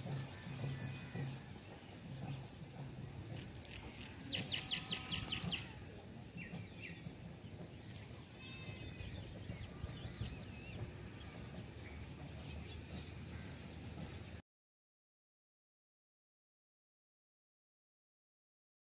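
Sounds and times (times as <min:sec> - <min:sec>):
bird calling sharp notes: 0:04.0 - 0:07.0.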